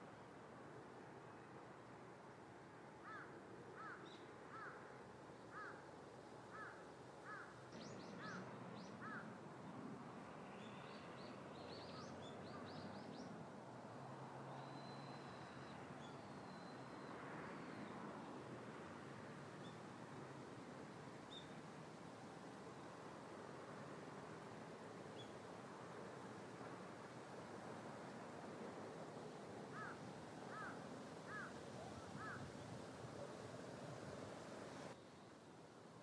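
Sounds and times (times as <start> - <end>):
bird calling: 6.6 - 9.3, 29.7 - 32.5.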